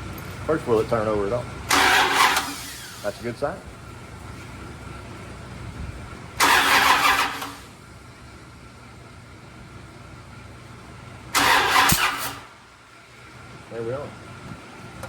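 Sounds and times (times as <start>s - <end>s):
starter motor cranking: 1.7s - 3.2s, 6.4s - 7.7s, 11.4s - 12.5s.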